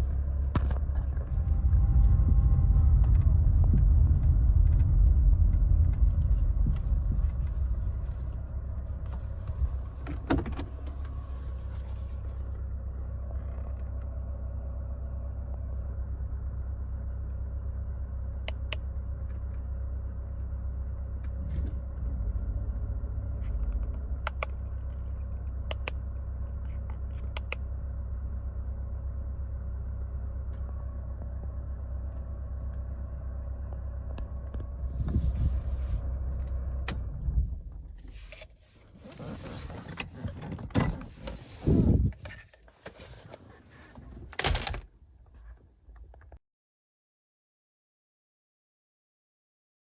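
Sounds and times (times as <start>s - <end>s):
car engine idling: 0.0s - 38.7s
sharp clicks: 23.6s - 25.0s, 25.7s - 26.0s, 26.9s - 27.6s.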